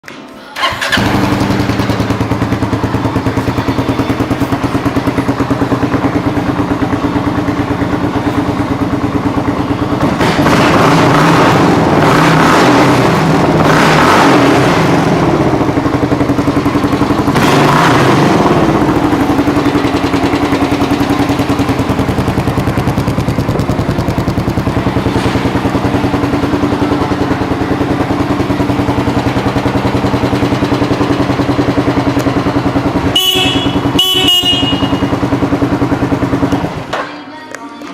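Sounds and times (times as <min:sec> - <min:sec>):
motorcycle engine revving and idling: 0:00.6 - 0:37.0
horn beeps: 0:33.0 - 0:35.3.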